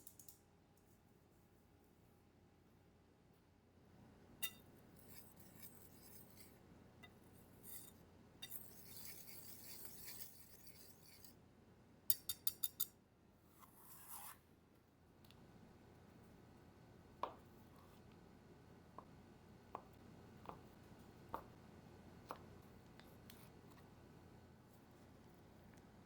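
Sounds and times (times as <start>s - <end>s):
utensils scraping in a bowl: 4.4s - 11.4s.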